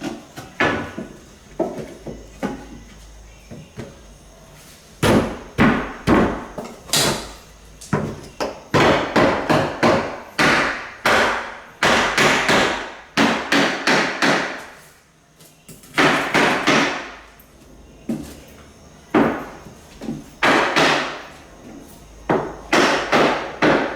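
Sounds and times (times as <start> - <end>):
hammer striking floorboards: 0.0 - 2.9, 5.0 - 14.8, 16.0 - 17.1, 19.1 - 21.3, 22.3 - 23.9.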